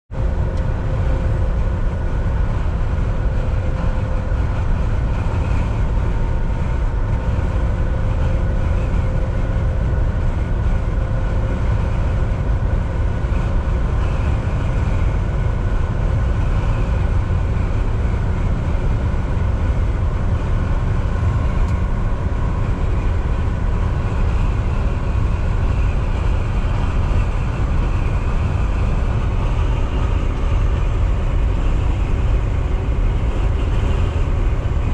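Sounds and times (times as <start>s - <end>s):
road and tyre noise: 0.0s - 34.9s
truck engine drone: 0.1s - 34.9s.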